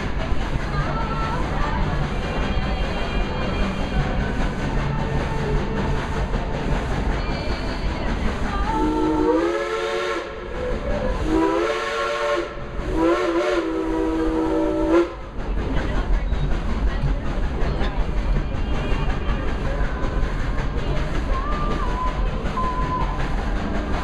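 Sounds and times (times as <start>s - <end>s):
train running rumble: 0.0s - 24.0s
steam locomotive chime whistle: 8.8s - 10.4s, 11.3s - 15.2s.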